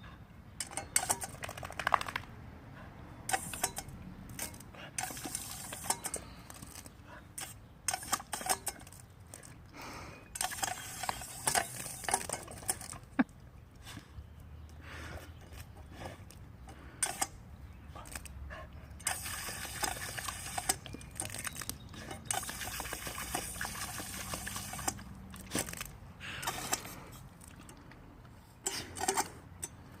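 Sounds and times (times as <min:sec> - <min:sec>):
water fountain spraying: 0:19.0 - 0:21.6, 0:22.3 - 0:25.8.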